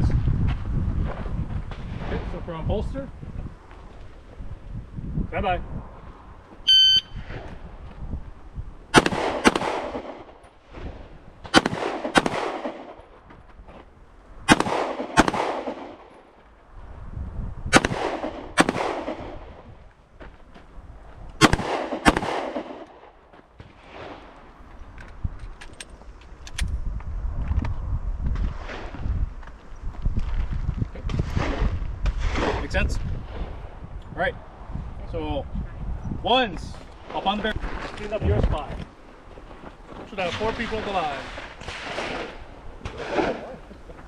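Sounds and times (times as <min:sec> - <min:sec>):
handgun shots echoing: 0:09.0 - 0:10.2, 0:11.5 - 0:13.0, 0:14.5 - 0:16.1, 0:17.8 - 0:19.2, 0:21.4 - 0:23.0.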